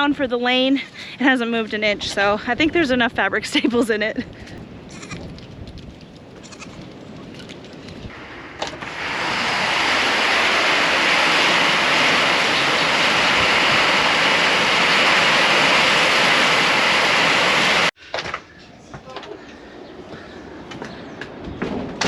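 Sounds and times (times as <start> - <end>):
storm rushing noise: 4.2 - 18.0.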